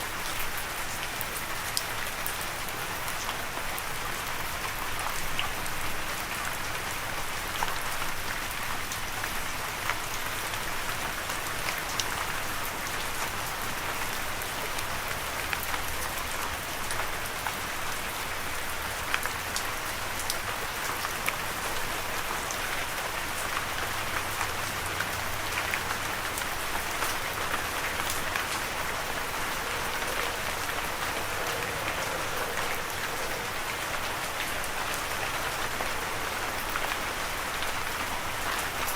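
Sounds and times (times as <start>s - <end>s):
rain falling: 0.0s - 38.9s
raindrops ticking: 23.3s - 38.9s.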